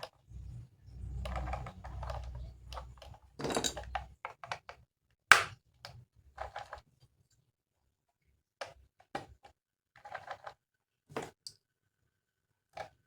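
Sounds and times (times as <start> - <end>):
low rumbling handling noise: 0.3 - 4.2
loud sharp plastic snap: 5.3 - 5.6.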